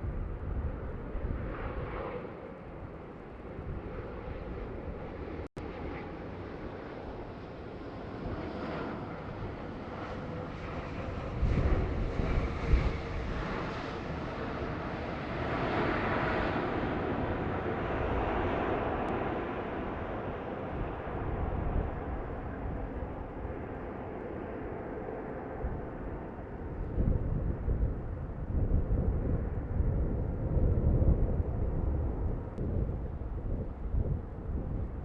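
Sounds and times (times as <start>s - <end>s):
wind buffeting microphone: 0.0s - 7.2s, 8.0s - 35.0s
jet airliner passing: 0.0s - 35.0s.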